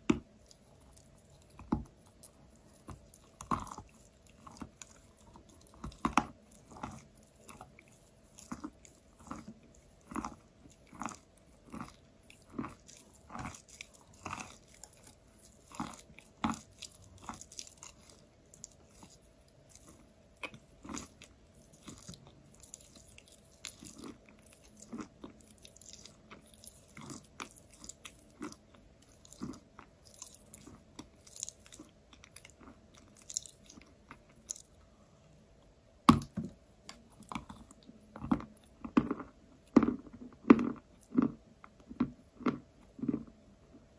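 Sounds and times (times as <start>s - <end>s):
quiet chewing crunches: 0.0s - 35.0s, 36.8s - 43.9s
faint steady hum: 0.0s - 43.9s.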